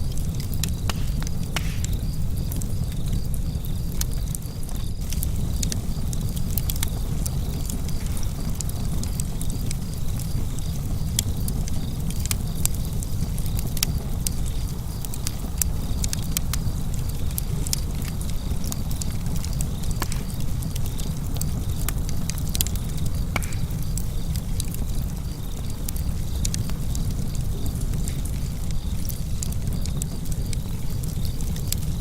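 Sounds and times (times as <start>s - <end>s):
steady low rumble: 0.0s - 4.1s
fire crackling in a fireplace: 0.0s - 32.0s
sharp pops and snaps of fire: 0.0s - 32.0s.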